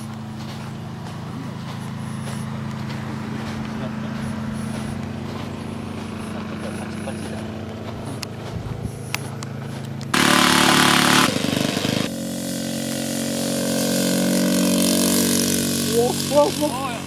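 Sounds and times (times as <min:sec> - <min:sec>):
small engine running: 0:00.0 - 0:17.0
loud rushing noise: 0:10.1 - 0:17.0.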